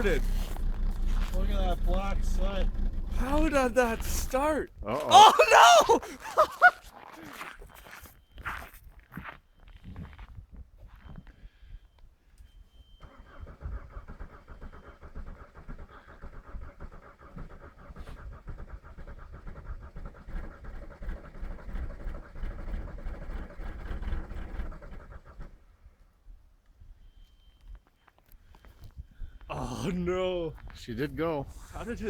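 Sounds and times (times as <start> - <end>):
diesel engine cranking on starter: 0.0 - 4.6, 13.0 - 25.7.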